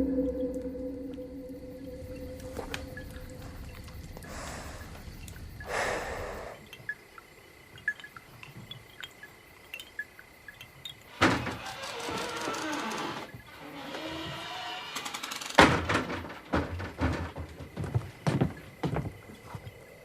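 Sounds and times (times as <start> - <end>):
low rumble: 0.0 - 5.6
small clicks and creaks: 7.7 - 15.7
ringing and rattling: 7.7 - 18.9.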